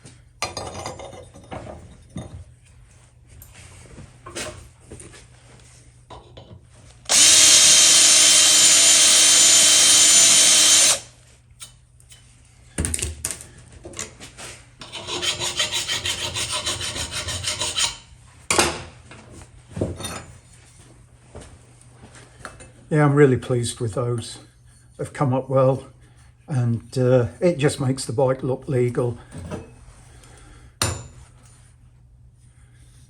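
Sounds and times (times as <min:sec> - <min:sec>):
electric drill running: 0:07.1 - 0:11.2.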